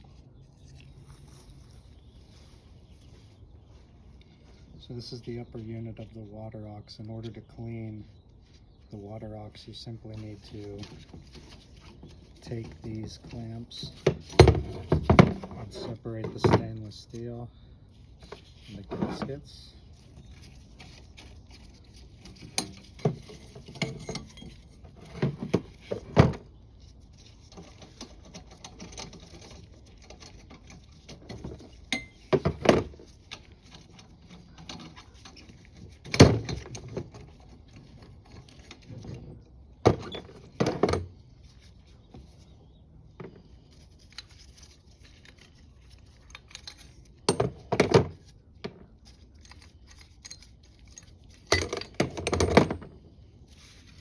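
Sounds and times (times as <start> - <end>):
handling rattles: 9.4 - 17.4, 18.0 - 54.0
metal parts clinking and clanking: 21.8 - 26.4, 27.2 - 39.2, 44.0 - 48.3, 49.4 - 53.0.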